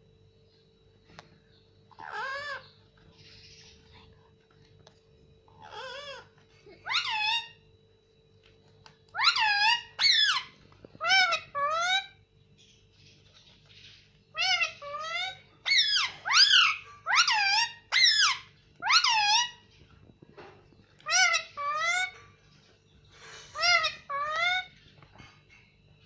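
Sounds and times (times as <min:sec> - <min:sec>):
faint low hum: 0:00.0 - 0:26.0
parrot calling shrilly: 0:01.9 - 0:02.7, 0:05.6 - 0:07.6, 0:09.1 - 0:12.2, 0:14.3 - 0:19.6, 0:21.0 - 0:22.2, 0:23.6 - 0:24.7.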